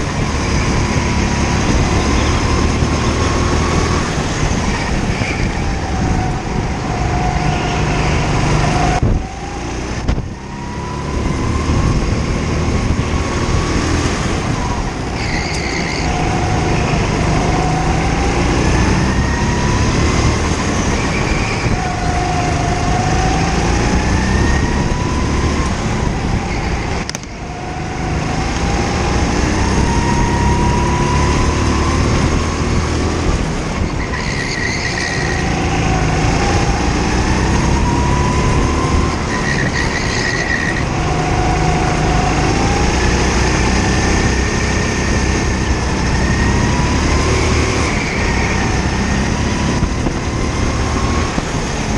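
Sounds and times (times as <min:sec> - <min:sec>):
kart drive whine: 0:00.0 - 0:51.9.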